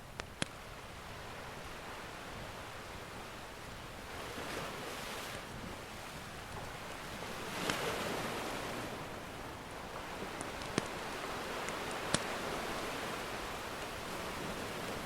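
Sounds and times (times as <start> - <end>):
fire crackle pop: 0.2 - 0.6, 10.4 - 11.0, 11.6 - 12.4
ocean surf washing in: 1.1 - 15.0.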